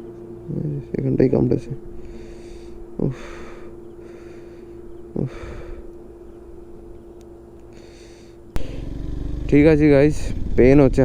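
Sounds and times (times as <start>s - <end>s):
steady low hum: 0.0s - 11.0s
man's hissing breaths of pain: 2.0s - 5.9s.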